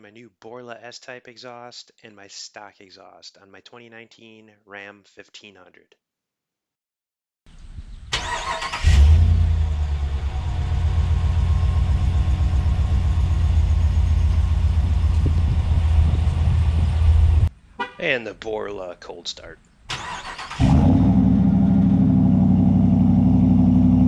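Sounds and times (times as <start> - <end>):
car engine starting and idling: 8.1 - 17.5, 19.9 - 24.0
starter motor cranking: 19.9 - 20.8.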